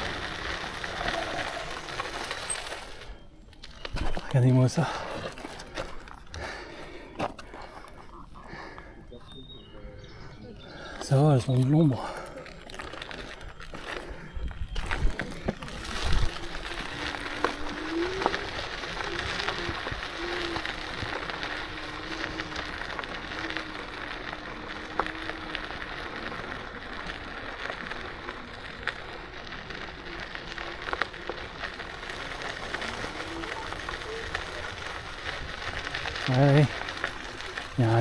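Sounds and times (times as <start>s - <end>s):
scooter tyres crunching on gravel: 0.0s - 38.0s
small ticks: 15.4s - 38.0s.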